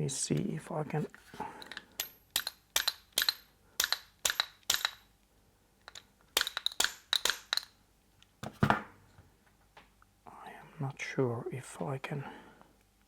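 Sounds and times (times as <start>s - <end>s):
sharp metallic taps: 2.0s - 5.0s, 5.9s - 7.7s.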